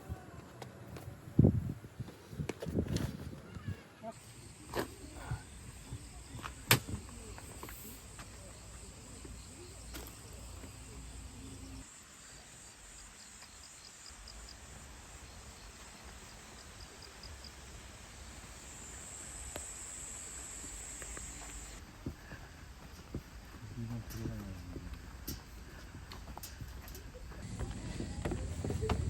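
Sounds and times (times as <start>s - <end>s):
quick insect chirps: 4.2s - 21.8s
crickets trilling: 4.2s - 25.7s.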